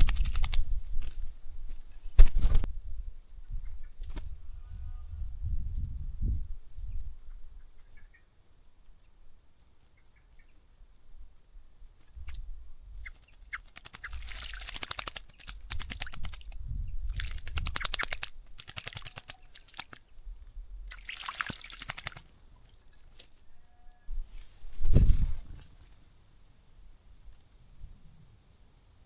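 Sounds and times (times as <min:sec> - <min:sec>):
birds splashing in water: 0:00.0 - 0:00.7, 0:13.0 - 0:20.1, 0:20.9 - 0:23.3
faint bird chirps: 0:06.8 - 0:08.4.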